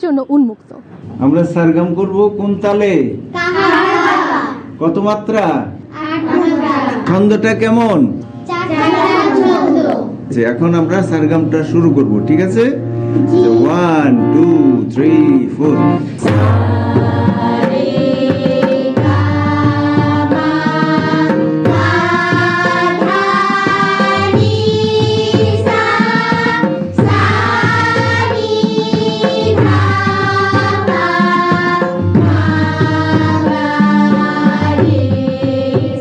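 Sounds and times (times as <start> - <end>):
people singing scale exercise: 3.3 - 5.0, 5.9 - 8.0, 8.6 - 10.4, 14.6 - 36.0
tabla rhythm: 10.2 - 36.0.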